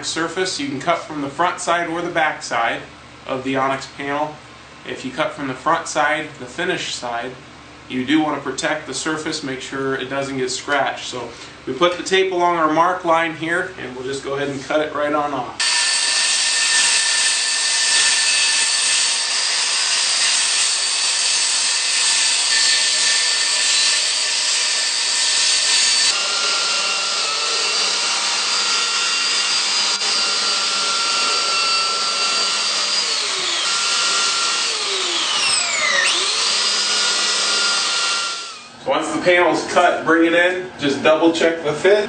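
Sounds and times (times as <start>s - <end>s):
circular saw cutting: 15.6s - 38.7s.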